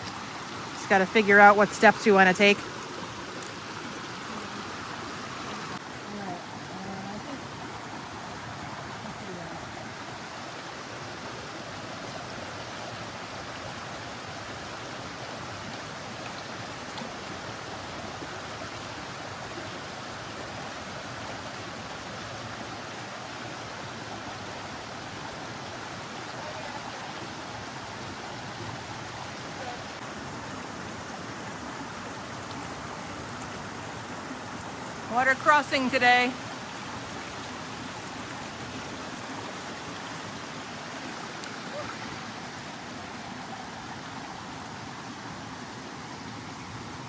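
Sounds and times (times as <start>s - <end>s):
brook flowing water: 0.0s - 47.0s.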